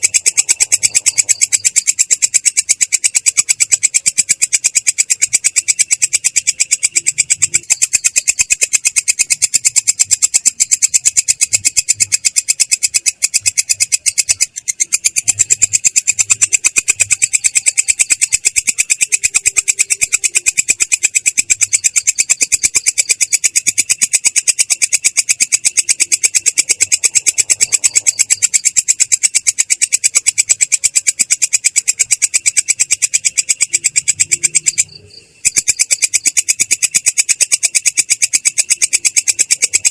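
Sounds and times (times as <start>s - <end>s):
katydid stridulating chirps: 0.0s - 39.9s.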